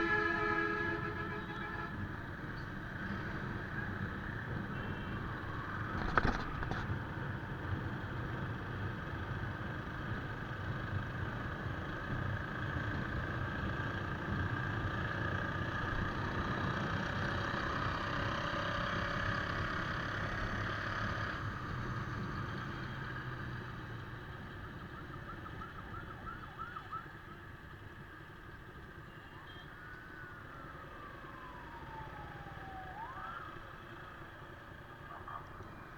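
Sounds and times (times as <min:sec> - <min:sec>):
motorcycle engine on highway: 0:00.0 - 0:35.9.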